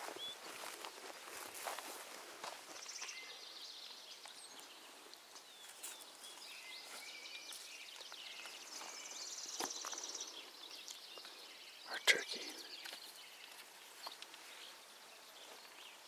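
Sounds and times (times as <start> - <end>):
small birds singing and chirping: 0.0 - 16.0.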